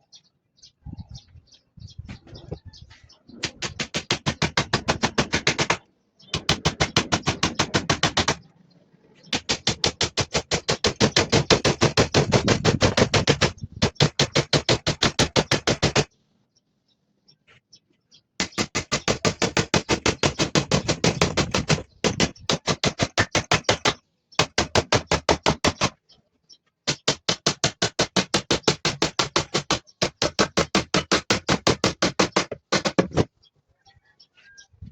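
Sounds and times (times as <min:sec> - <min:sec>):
hand tool working wood: 0:03.4 - 0:05.8, 0:06.4 - 0:08.4, 0:09.3 - 0:16.1, 0:18.4 - 0:25.9, 0:26.9 - 0:33.3.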